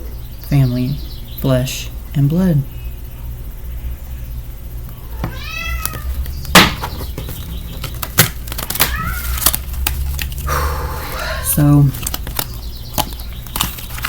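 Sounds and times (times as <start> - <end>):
cat meowing: 5.1 - 6.2, 8.8 - 9.5.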